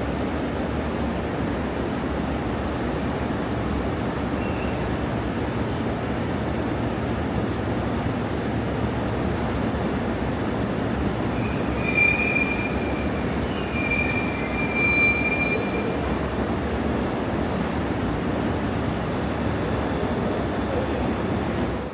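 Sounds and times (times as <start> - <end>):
train rumbling: 0.0 - 21.9
train wheels squealing: 0.5 - 1.2, 4.3 - 5.0, 11.3 - 17.4.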